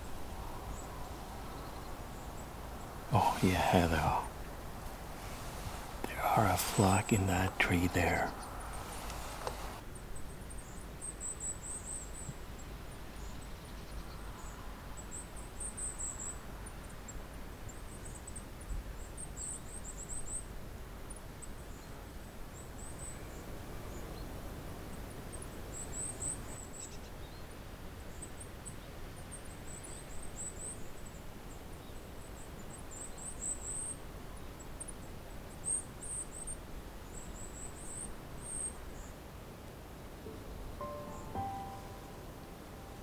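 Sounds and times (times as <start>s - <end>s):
faint background hiss: 0.0s - 16.6s, 28.7s - 43.0s
flock of birds calling high notes: 40.8s - 42.8s.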